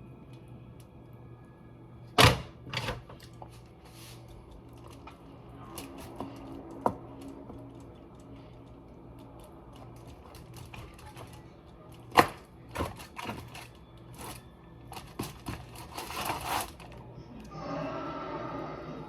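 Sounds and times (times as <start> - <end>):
steady low hum: 0.0 - 19.0
utensils and containers clattering: 12.0 - 17.0.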